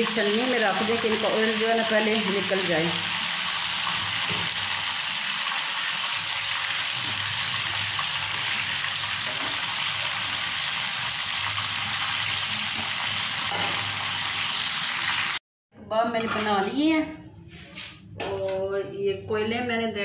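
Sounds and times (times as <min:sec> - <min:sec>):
kebabs sizzling in hot oil: 0:00.0 - 0:15.4.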